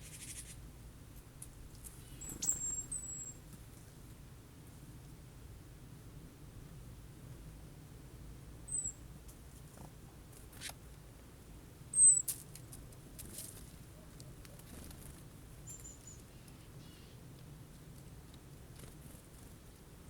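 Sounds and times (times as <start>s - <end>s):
small bird high call notes: 2.0s - 3.4s, 12.0s - 12.3s.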